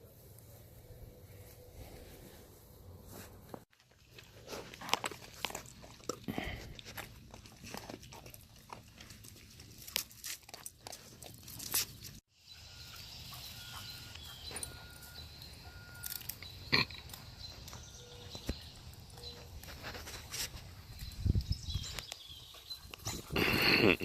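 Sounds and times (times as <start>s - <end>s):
puppies chewing and biting: 3.7s - 12.2s, 13.2s - 24.0s.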